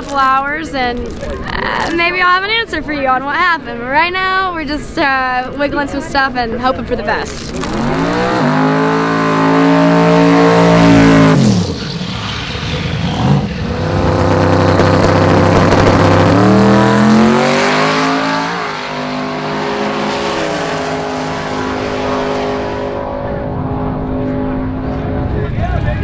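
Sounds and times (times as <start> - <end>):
racing car engine revving: 7.4 - 25.9.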